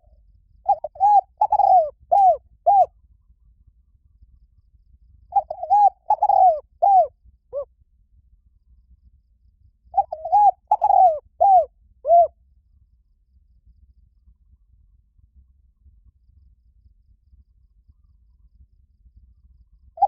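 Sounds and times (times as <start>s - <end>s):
dove cooing: 0.7s - 2.9s, 5.3s - 7.7s, 10.0s - 12.3s.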